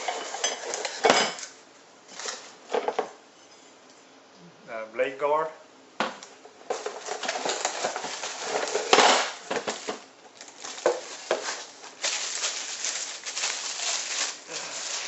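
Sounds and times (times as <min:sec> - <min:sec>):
packaging rustling: 0:06.7 - 0:15.0.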